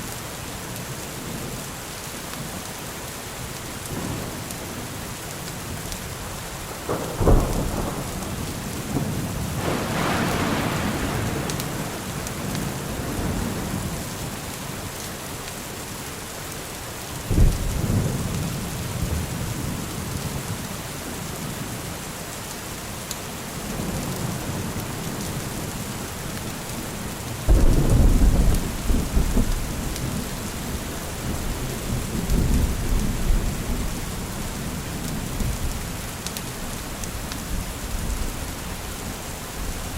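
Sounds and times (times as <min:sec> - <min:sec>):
heavy rain: 0:00.0 - 0:39.9
rolling thunder rumble: 0:05.7 - 0:14.5, 0:17.3 - 0:19.9, 0:23.6 - 0:36.1
thunder clap: 0:06.8 - 0:14.0, 0:27.5 - 0:33.4.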